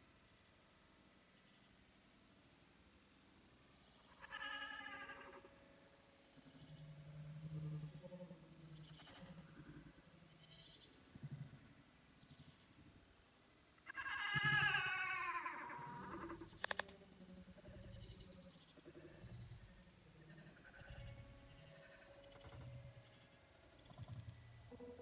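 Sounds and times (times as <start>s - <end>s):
cat meowing: 13.9s - 16.4s
sharp click: 16.1s - 16.9s.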